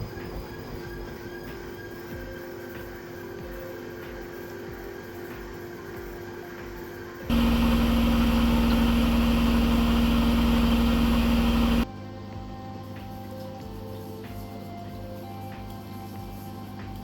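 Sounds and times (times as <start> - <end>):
washing machine running: 7.3 - 11.9.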